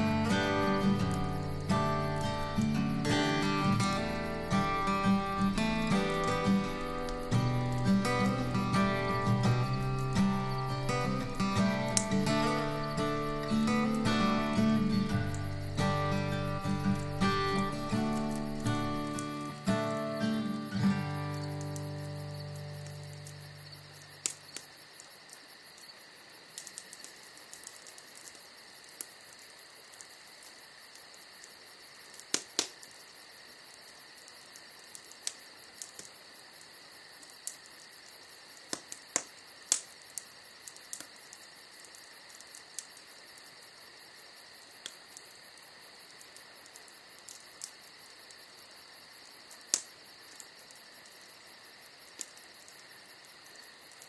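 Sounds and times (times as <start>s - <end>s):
fire popping: 0.0s - 25.2s, 25.8s - 30.2s, 30.9s - 32.9s, 34.8s - 36.3s, 37.1s - 43.6s, 49.4s - 52.8s
bonfire crackling: 0.0s - 54.0s
crickets chirping: 0.0s - 54.0s.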